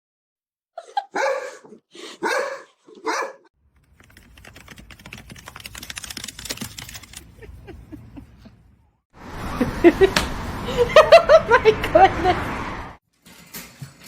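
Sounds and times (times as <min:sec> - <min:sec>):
dog barking: 0:01.0 - 0:03.5
small clicks and scratches: 0:03.8 - 0:07.4.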